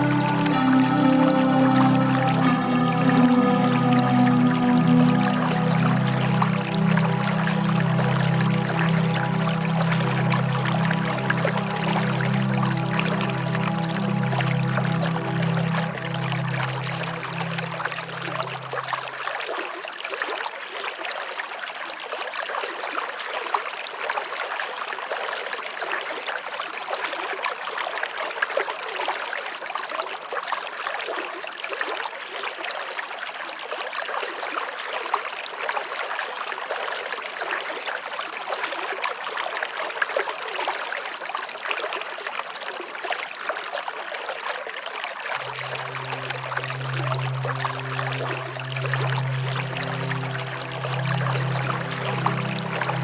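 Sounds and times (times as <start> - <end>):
low held musical tone: 0.0 - 19.4, 45.4 - 53.0
stream water babbling: 0.0 - 53.0.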